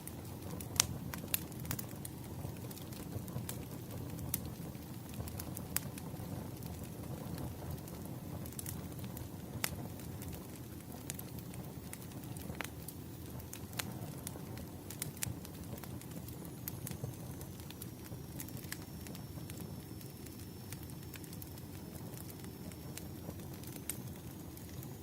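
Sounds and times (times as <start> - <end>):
wood fire crackling: 0.0 - 25.0
thin high whine: 16.4 - 25.0.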